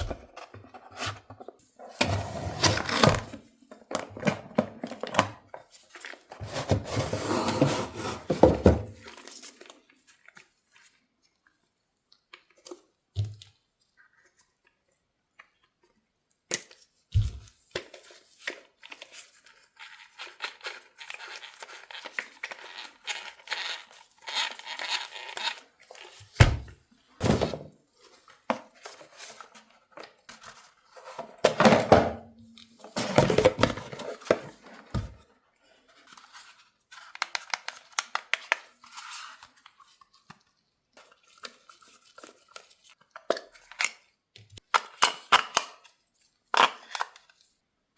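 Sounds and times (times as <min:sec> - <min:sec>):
cardboard and plastic tearing: 0:00.0 - 0:05.4.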